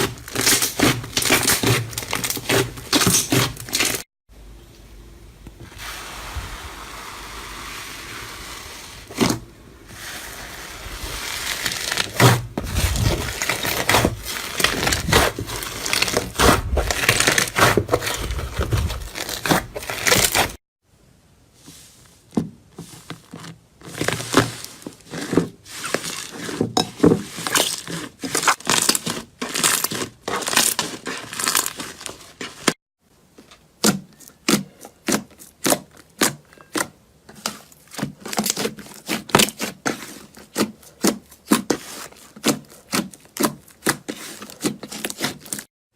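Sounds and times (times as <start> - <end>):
crunchy slime crackling: 0.0 - 4.0, 10.0 - 20.6, 27.2 - 32.7, 33.8 - 45.7.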